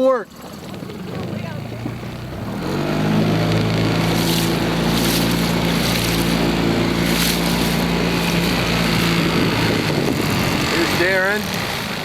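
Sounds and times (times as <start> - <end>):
motorboat engine running: 0.0 - 12.0
wind gusts on microphone: 0.6 - 12.0
wind hiss: 4.0 - 12.0.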